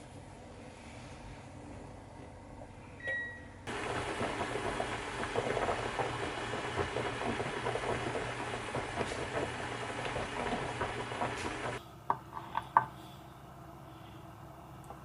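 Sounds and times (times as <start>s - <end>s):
short beep: 3.0s - 3.5s
food sizzling in frying pan: 3.7s - 11.8s.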